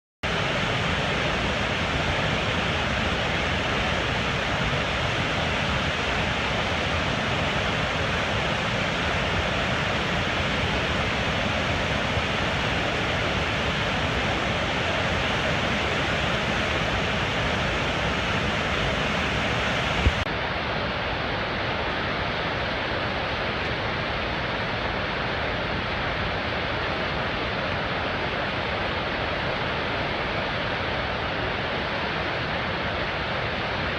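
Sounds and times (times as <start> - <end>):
waterfall rushing: 0.3 - 33.9.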